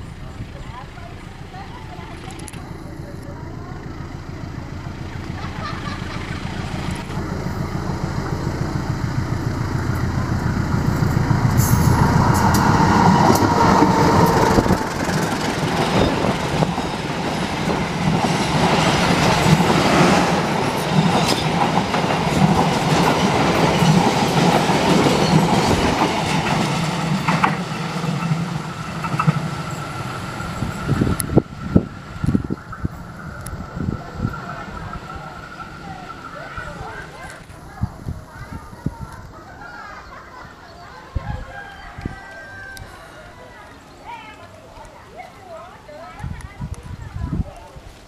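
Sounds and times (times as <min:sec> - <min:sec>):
diesel locomotive engine drone: 0:00.0 - 0:41.2
train wheels clattering on rails: 0:05.2 - 0:39.3.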